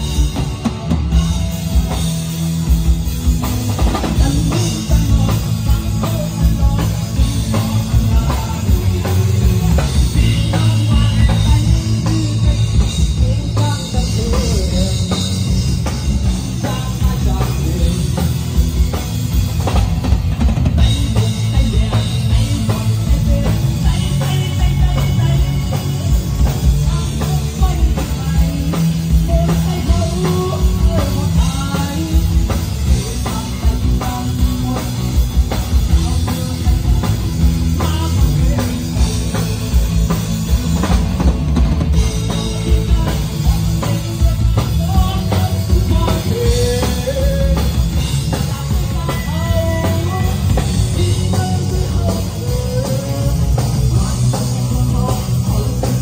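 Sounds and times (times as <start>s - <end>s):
drum kit steady beat: 0.0s - 56.0s
rock band music: 0.0s - 56.0s.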